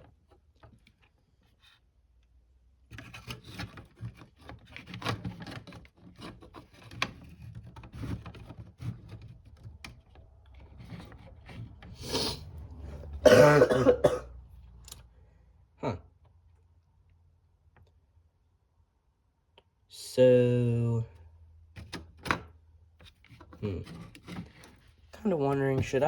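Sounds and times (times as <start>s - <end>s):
hands rubbing and scraping circuit board: 2.9s - 12.4s, 23.0s - 26.0s.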